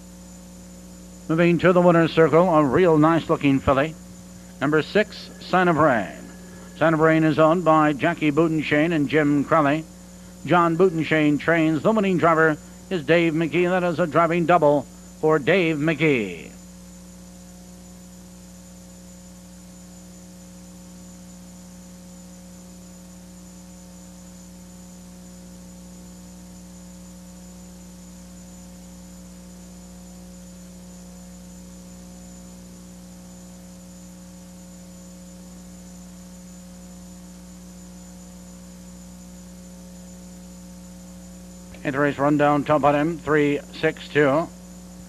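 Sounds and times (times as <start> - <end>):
faint hiss: 0.0 - 20.2
electrical mains hum: 0.0 - 45.0.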